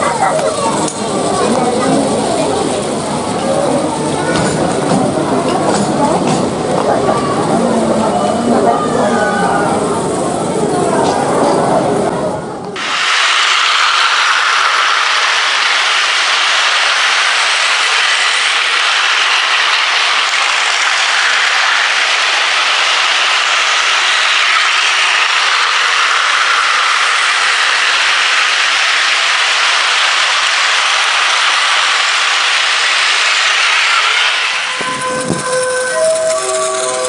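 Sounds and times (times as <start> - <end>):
toy train motors whirring: 0.0 - 9.6, 12.8 - 37.0.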